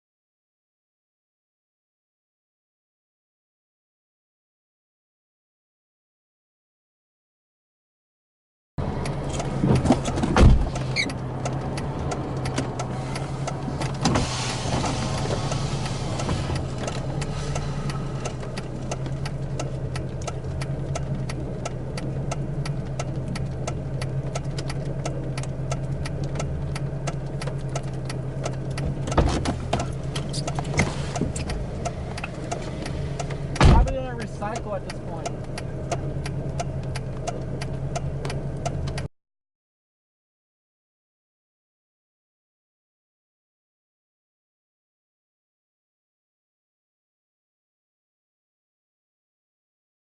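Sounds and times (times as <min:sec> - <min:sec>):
car engine idling: 0:08.8 - 0:39.1.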